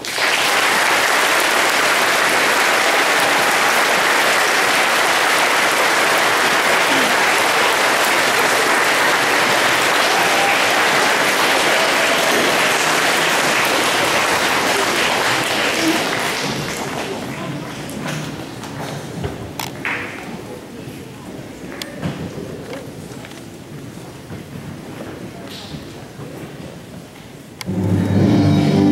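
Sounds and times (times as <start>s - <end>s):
large audience applauding: 0.0s - 18.8s.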